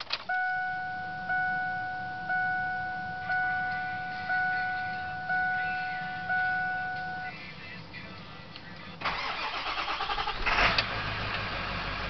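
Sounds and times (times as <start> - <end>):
dashboard warning chime dinging: 0.2 - 7.4.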